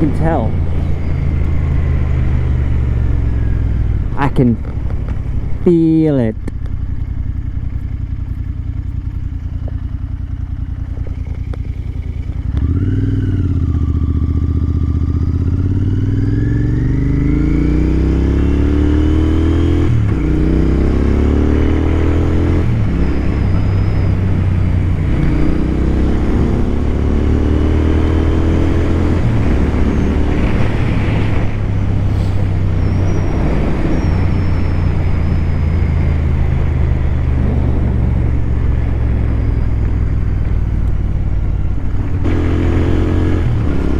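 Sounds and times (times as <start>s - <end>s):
motorcycle engine revving: 0.0s - 43.9s
rushing wind noise: 22.0s - 43.9s.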